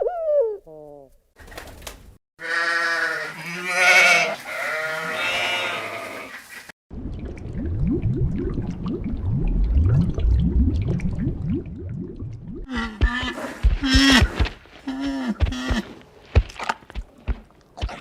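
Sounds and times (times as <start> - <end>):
animal bleating: 2.4 - 6.4.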